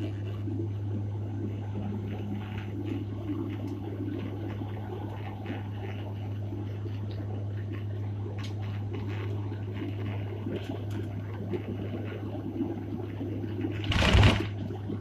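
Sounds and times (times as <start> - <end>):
airliner engine and airflow drone: 0.0 - 15.0
faint small rattles: 13.8 - 14.6.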